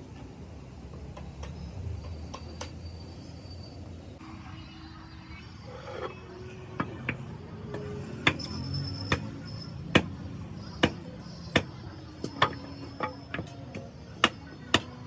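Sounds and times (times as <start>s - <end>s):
hammer blows with metallic ring: 7.7s - 15.0s.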